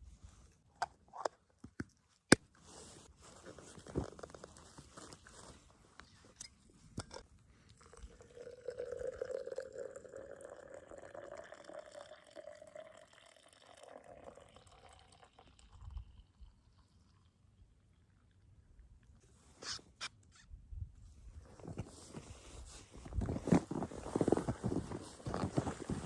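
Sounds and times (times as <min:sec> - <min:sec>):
coffee pouring into a cup: 0:07.7 - 0:17.3.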